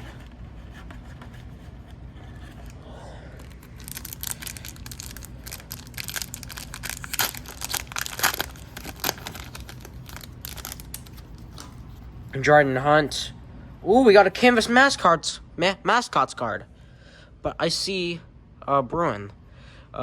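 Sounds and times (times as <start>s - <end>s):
wrapper tearing and crinkling: 3.4s - 11.8s.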